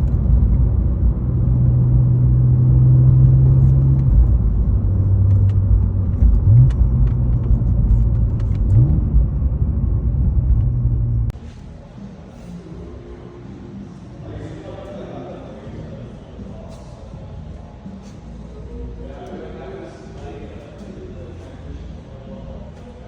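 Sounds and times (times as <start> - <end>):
car engine running: 0.0 - 11.6
road rumble: 0.0 - 14.4.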